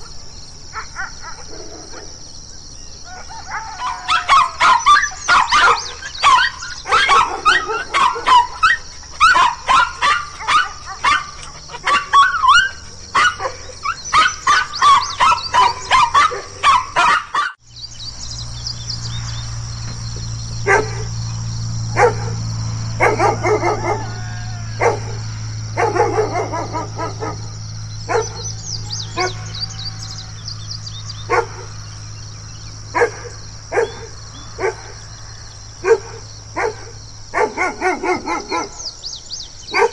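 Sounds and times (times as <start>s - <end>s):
dogs barking aggressively: 0.0s - 2.3s, 3.0s - 17.6s, 19.1s - 39.9s
steady low hum: 17.6s - 39.9s.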